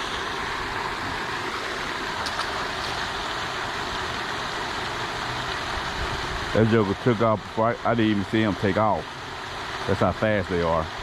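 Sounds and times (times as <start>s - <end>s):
fountain spray rushing: 0.0s - 11.0s.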